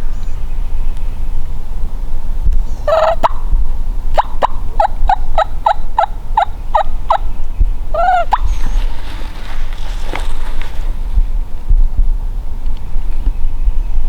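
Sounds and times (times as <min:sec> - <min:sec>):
wild turkey yelping: 0:02.9 - 0:03.5, 0:04.2 - 0:07.3, 0:07.9 - 0:11.1.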